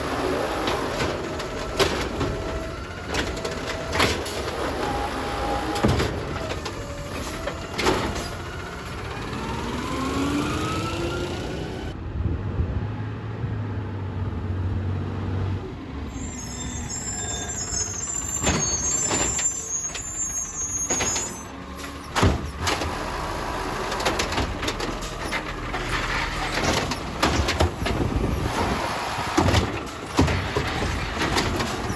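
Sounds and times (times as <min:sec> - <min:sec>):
diesel truck engine running: 0:00.0 - 0:12.0, 0:14.1 - 0:31.9
air brake squeal: 0:16.0 - 0:22.2
sharp knocks and bangs: 0:26.5 - 0:31.9.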